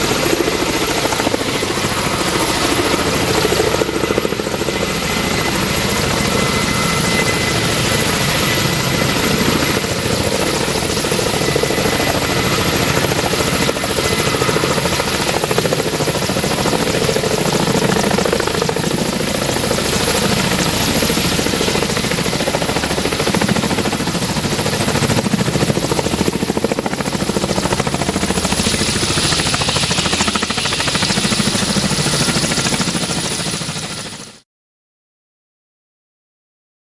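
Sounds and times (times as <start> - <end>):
helicopter rotors beating: 0.0 - 34.4
helicopter turbine whine: 0.0 - 34.4.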